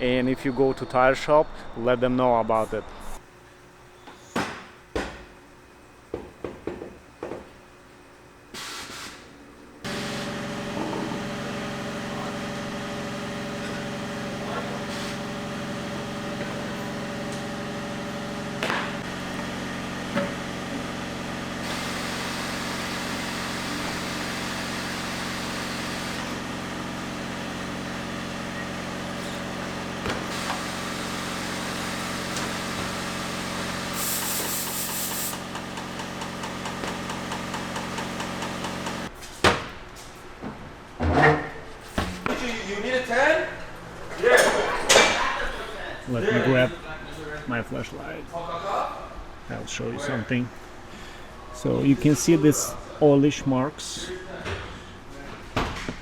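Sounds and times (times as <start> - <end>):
machine humming: 9.6 - 39.1.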